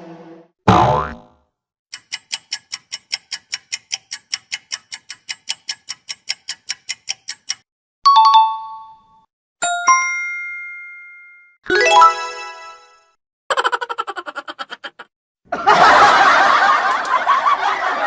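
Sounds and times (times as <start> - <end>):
rapid even ticking: 1.9 - 7.7
bell-like ding: 9.6 - 11.6.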